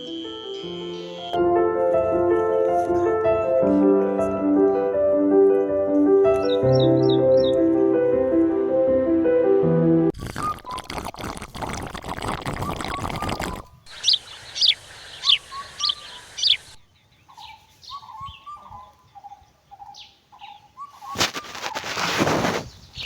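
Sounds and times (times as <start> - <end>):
small birds chirping: 0.0 - 1.4, 6.4 - 7.6, 12.7 - 21.9, 22.6 - 23.0.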